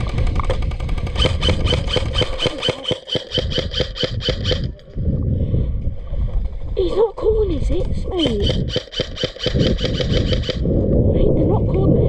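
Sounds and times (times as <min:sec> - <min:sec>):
airsoft rifle rapid firing: 0:00.0 - 0:04.8, 0:08.2 - 0:10.6.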